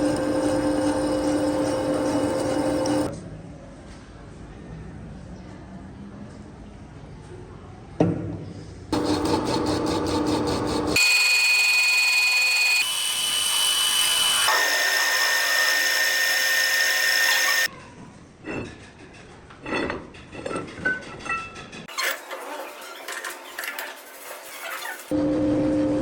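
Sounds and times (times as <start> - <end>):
power tool whining on metal: 0.0 - 3.1, 9.0 - 17.7
metal scraping and knocking: 18.4 - 22.2.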